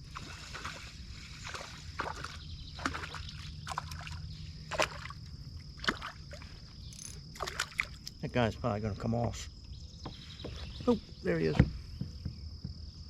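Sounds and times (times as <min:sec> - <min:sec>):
water splashes: 0:00.0 - 0:06.6, 0:07.3 - 0:08.2
water lapping at kayak: 0:00.0 - 0:08.2.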